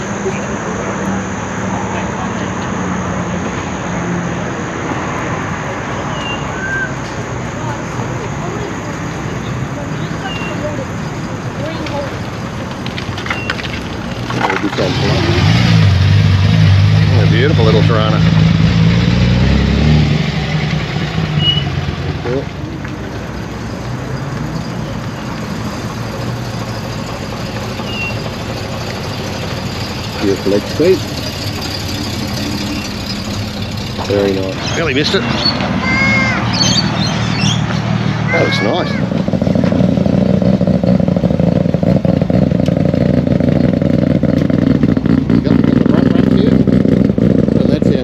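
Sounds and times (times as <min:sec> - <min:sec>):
car engines idling: 0:00.0 - 0:48.0.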